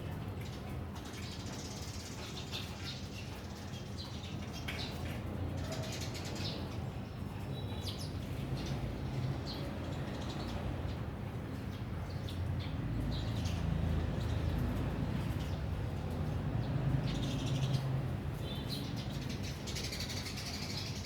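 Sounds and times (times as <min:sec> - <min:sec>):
birds chirping: 0:07.7 - 0:21.0.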